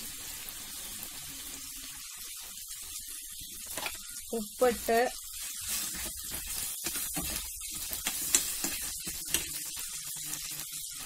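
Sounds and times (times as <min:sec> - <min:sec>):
vegetables sizzling in a pan: 0:00.0 - 0:11.0
metal spoon stirring: 0:05.4 - 0:09.5.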